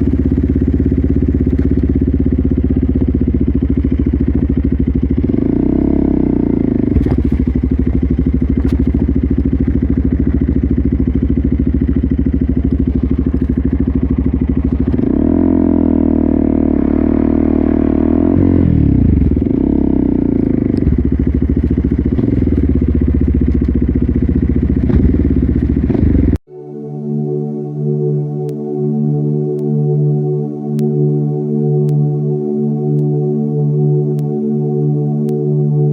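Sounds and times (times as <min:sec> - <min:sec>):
motorcycle engine revving: 0:00.0 - 0:26.4.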